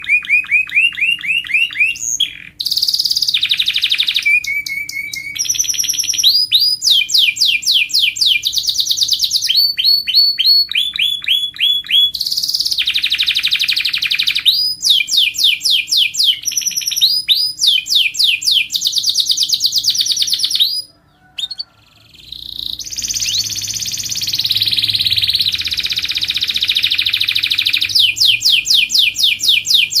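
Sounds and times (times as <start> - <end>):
canary singing trills: 0.0 - 30.0.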